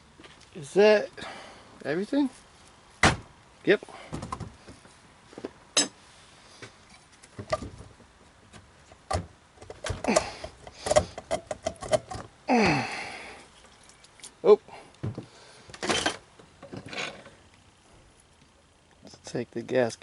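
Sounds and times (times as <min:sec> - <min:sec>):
tools and engine parts clicking: 0:09.6 - 0:12.3.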